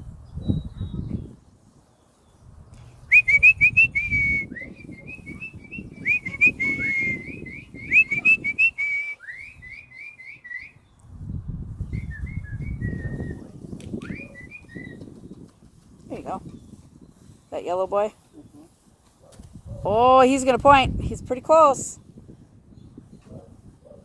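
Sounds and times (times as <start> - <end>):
person whistling high chirps: 3.1 - 10.8, 11.9 - 15.1.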